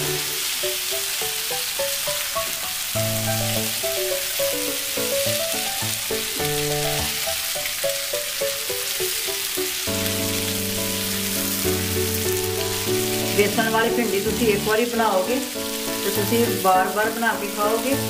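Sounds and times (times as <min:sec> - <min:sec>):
background music: 0:00.0 - 0:18.0
vegetables sizzling in oil: 0:00.0 - 0:18.0.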